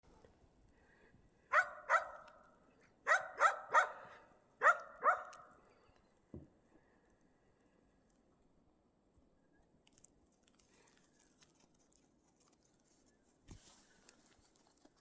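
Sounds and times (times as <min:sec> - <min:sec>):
dog barking: 0:01.5 - 0:05.6.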